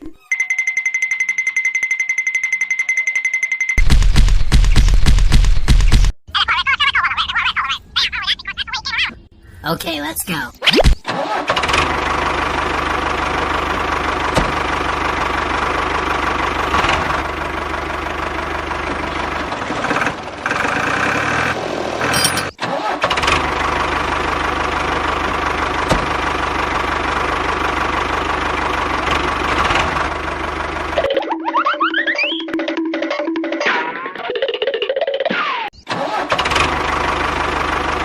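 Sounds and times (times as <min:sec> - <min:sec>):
tractor engine idling: 0:11.1 - 0:31.1, 0:35.9 - 0:38.0.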